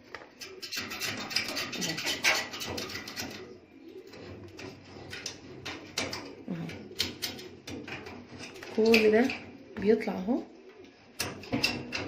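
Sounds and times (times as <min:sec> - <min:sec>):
metal parts clicking and scraping: 0:00.1 - 0:09.4.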